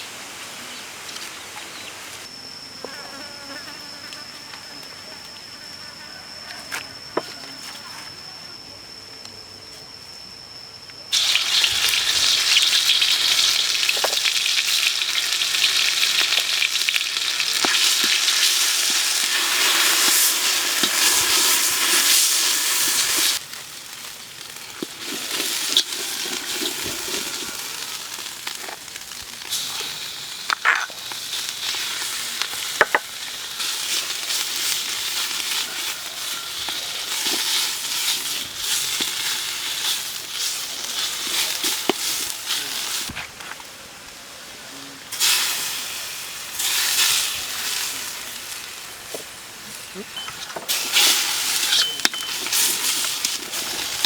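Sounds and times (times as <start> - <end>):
food sizzling in hot oil: 11.1 - 43.2, 45.1 - 49.4, 50.2 - 54.0.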